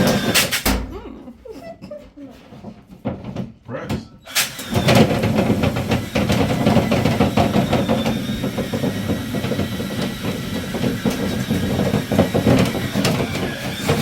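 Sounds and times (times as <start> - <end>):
power drill running: 0.0 - 0.6, 4.3 - 14.0
rods rattling and knocking in duct: 0.0 - 1.0, 1.8 - 3.7, 4.5 - 14.0.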